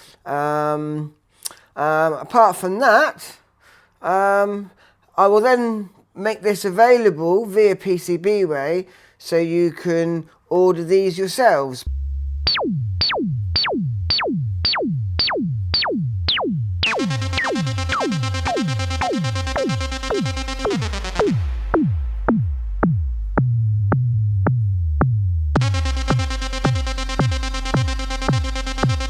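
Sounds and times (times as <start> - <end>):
buzzy synthesizer note: 11.9 - 29.0
drum machine kick beat: 11.9 - 29.0
low bass note: 11.9 - 29.0.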